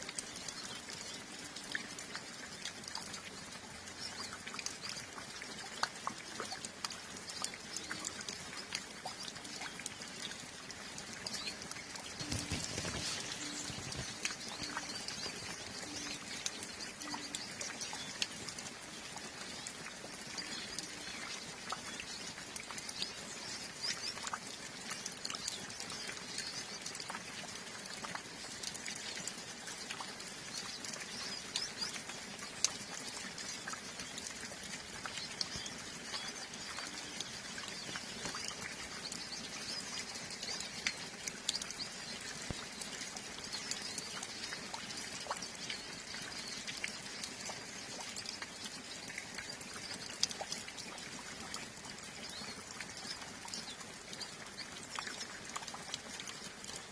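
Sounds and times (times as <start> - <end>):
light rain pattering: 0.0 - 56.9
water drips: 0.0 - 56.9
flock of birds twittering: 11.4 - 18.2.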